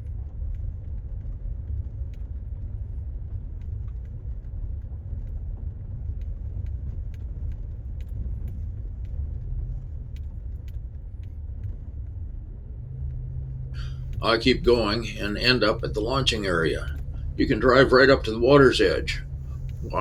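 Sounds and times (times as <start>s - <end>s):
small clicks and rattles: 0.0s - 14.2s
car rumbling on dirt road: 0.0s - 20.0s.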